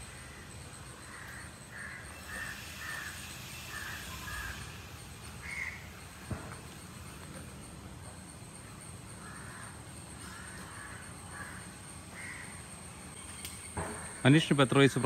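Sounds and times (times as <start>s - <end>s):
bird calling: 0.0s - 6.3s.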